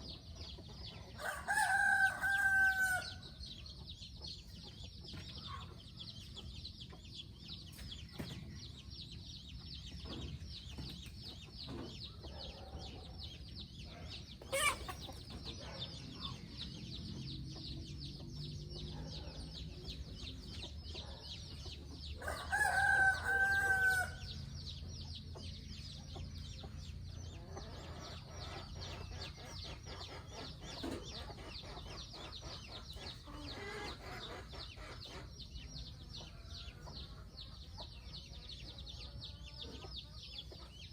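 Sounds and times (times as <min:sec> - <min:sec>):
chickens clucking: 0:00.0 - 0:40.9
rooster crowing: 0:01.2 - 0:03.2, 0:22.2 - 0:24.4.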